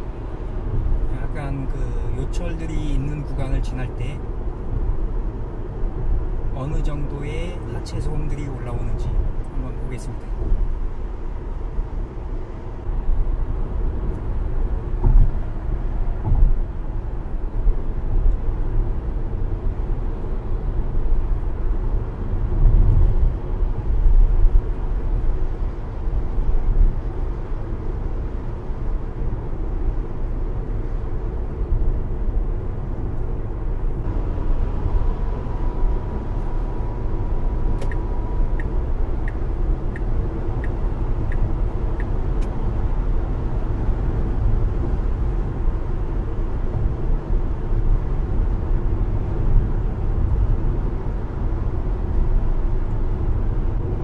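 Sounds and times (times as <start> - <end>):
road and tyre noise in car cabin: 0.0 - 54.0
suspension thuds over bumps: 14.8 - 16.7
light regular ticks: 38.6 - 42.6.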